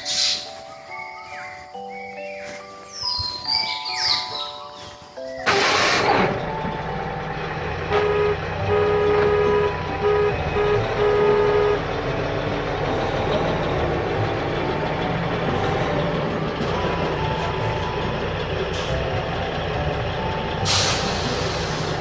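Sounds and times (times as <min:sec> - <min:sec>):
horn honking: 0:05.5 - 0:22.0
vehicle engine rumbling: 0:05.5 - 0:22.0.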